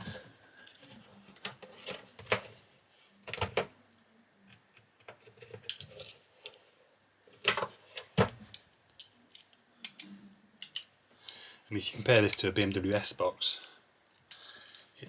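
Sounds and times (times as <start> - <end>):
metal tools clicking and knocking: 8.5 - 10.9.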